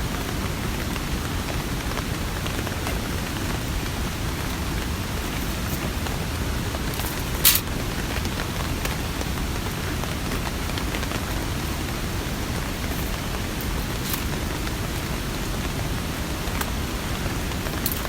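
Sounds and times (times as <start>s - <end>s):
steady rainfall: 0.0s - 18.0s.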